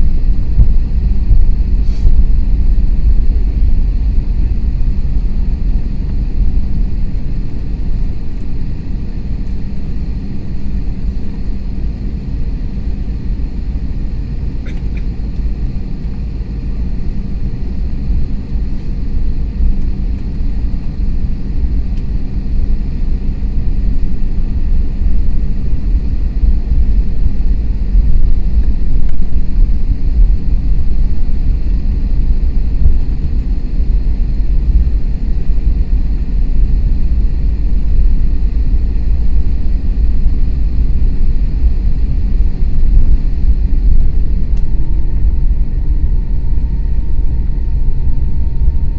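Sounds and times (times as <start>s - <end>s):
aircraft engines idling: 0.0s - 48.9s
faint steady tones: 0.0s - 48.9s.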